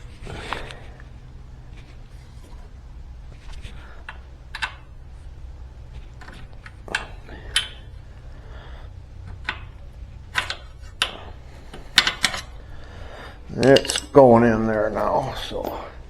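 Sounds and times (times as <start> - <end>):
light metallic clicks and taps: 6.2 - 7.8.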